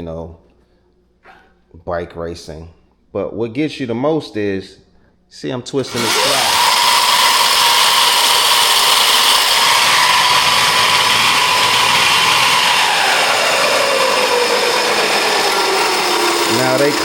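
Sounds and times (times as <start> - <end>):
electric motor high whine: 5.9 - 17.0.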